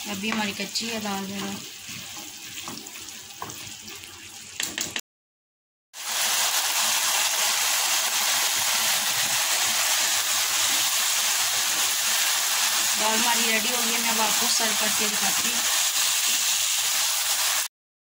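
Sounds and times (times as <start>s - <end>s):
lentils sizzling in frying pan: 0.0s - 4.6s, 6.0s - 17.7s
spatula stirring: 1.2s - 4.2s.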